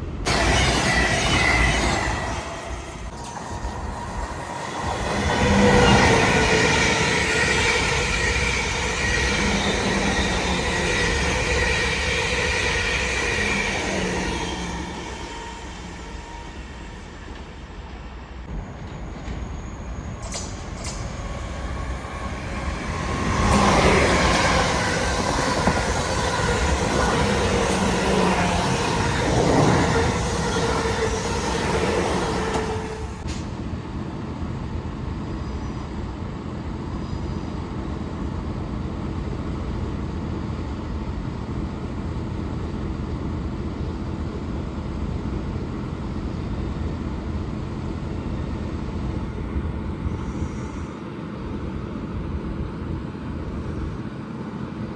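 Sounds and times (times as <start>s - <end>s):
train passing: 0.0s - 35.2s.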